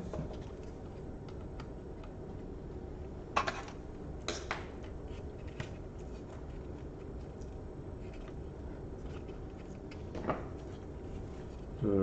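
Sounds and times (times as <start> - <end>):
laptop parts clicking and clattering: 3.4 - 8.4.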